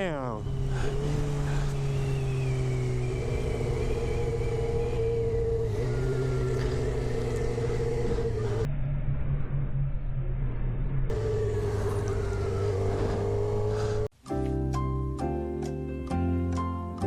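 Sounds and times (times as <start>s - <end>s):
motorcycle engine running: 0.0s - 8.7s, 11.1s - 14.1s.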